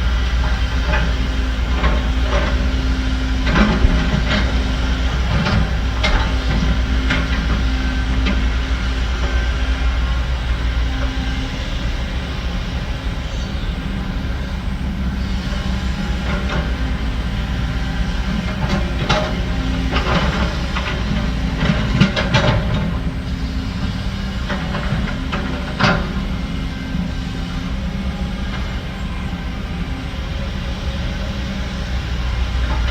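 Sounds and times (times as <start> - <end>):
diesel engine running: 0.0 - 32.9
machine knocking and scraping: 0.1 - 27.3.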